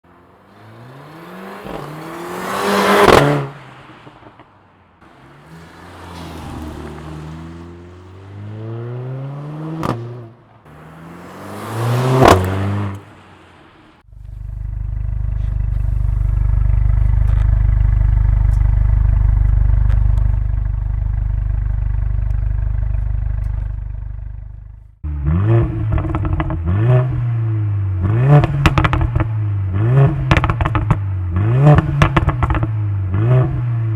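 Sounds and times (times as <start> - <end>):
car engine revving: 0.0 - 4.4, 5.0 - 33.9
exhaust crackling pops: 9.7 - 10.7, 12.1 - 13.2, 14.0 - 25.0, 25.6 - 26.7, 28.3 - 29.4, 30.0 - 33.6
heavy low engine drone: 14.1 - 25.2.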